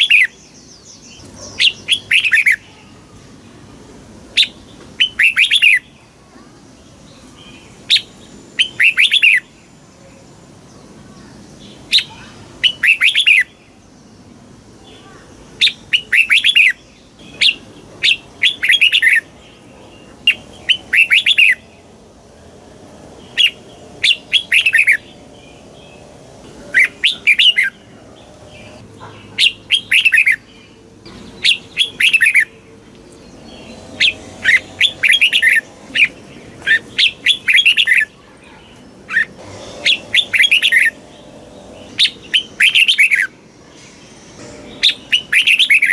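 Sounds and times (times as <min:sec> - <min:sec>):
bulbul warbling song: 0:39.1 - 0:45.9.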